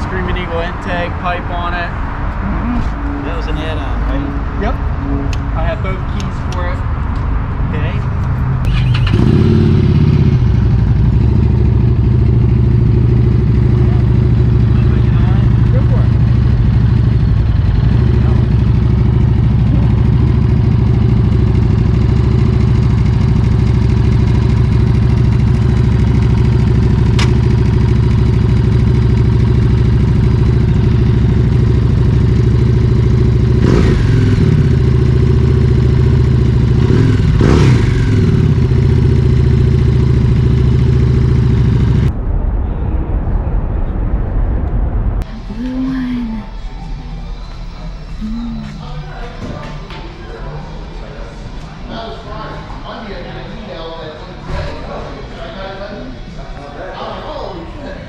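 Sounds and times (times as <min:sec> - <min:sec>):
motorcycle engine idling and revving: 0:00.0 - 0:42.1.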